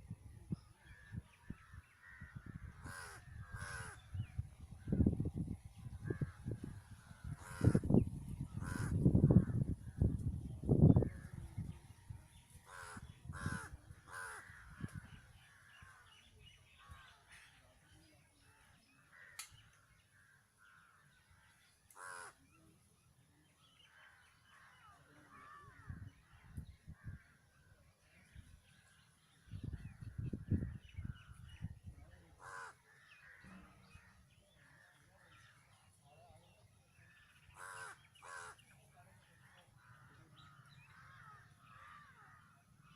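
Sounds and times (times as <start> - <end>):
crows cawing: 1.6 - 4.2, 7.2 - 7.9, 8.6 - 9.5, 12.6 - 16.1, 21.9 - 22.4, 24.0 - 26.0, 32.4 - 35.7, 37.5 - 38.6, 39.4 - 42.6.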